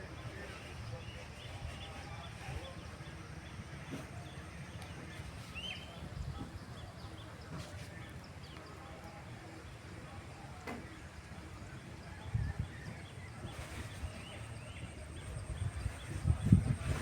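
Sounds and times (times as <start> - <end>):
birds chirping: 0.0 - 10.1.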